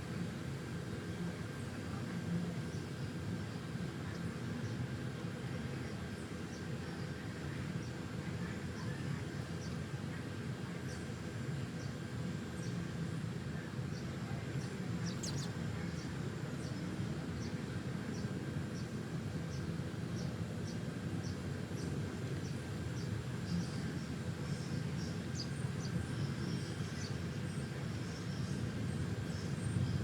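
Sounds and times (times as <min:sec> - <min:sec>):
small birds chirping: 0:15.0 - 0:15.6.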